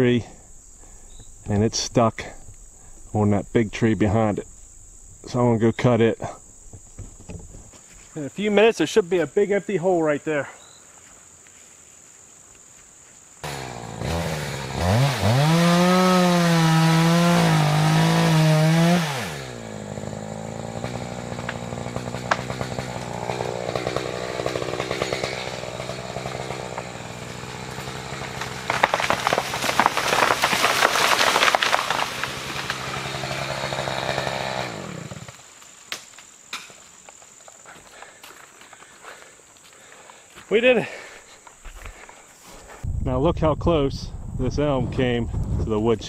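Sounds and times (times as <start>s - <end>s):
tree crashing through branches: 13.4s - 36.7s
chainsaw cutting and idling: 13.4s - 40.2s.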